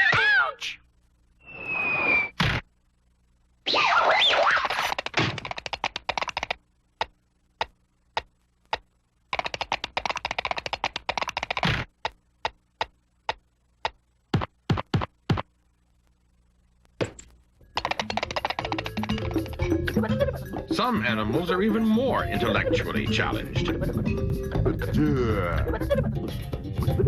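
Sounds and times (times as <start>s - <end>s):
rapid clicking taps: 4.9s - 15.5s, 17.7s - 20.0s.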